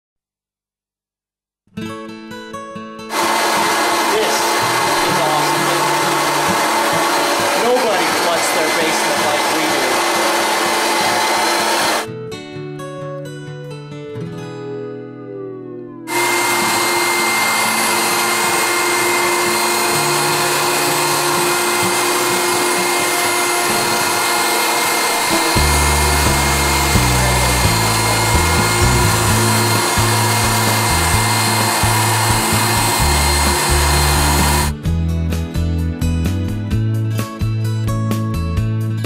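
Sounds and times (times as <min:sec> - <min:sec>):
water extraction vacuum running: 0:03.1 - 0:12.1, 0:16.1 - 0:34.8
background music with bass: 0:25.2 - 0:39.0.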